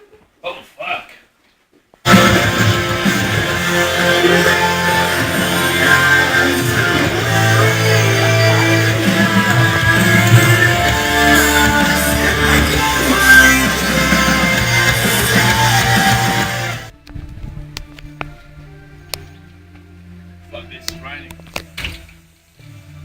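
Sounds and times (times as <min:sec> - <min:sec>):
rock music with guitars: 0:02.1 - 0:16.9
steady bass line: 0:02.1 - 0:16.9.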